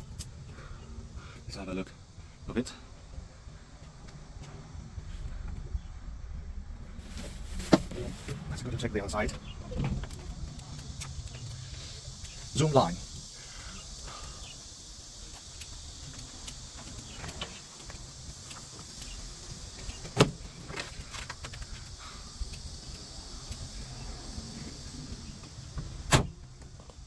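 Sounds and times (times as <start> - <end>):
outdoor background hiss and rumble: 0.0 - 27.0.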